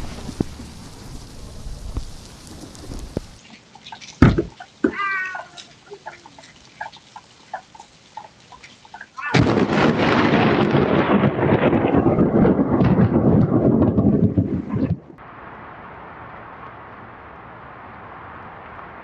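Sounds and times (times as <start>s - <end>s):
thunder crack: 0.0s - 3.4s, 9.3s - 16.3s
thunderclap rumbling: 0.0s - 3.4s, 9.2s - 18.8s
high-pitched cry: 4.8s - 6.4s, 9.0s - 9.4s.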